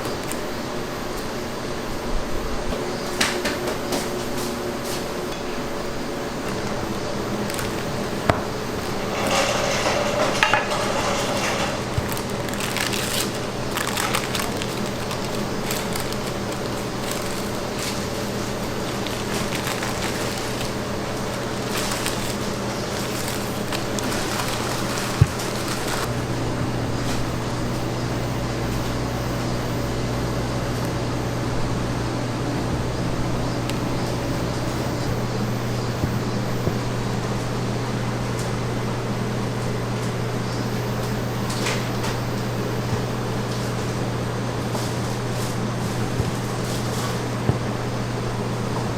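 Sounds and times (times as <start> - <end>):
steady low hum: 0.0 - 48.9
food crackling and crunching: 5.9 - 26.1, 39.5 - 48.9
utensils and containers knocking: 8.3 - 15.0.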